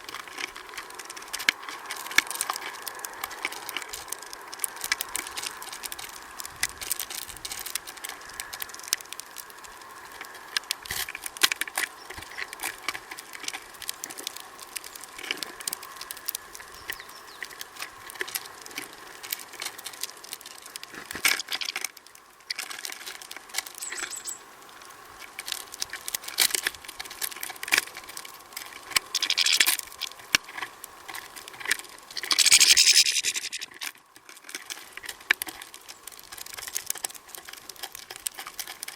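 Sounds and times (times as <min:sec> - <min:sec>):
birds pecking at feeder: 0:00.0 - 0:38.9
rustling bursts: 0:27.8 - 0:33.9
short high bird chirp: 0:32.3 - 0:33.7.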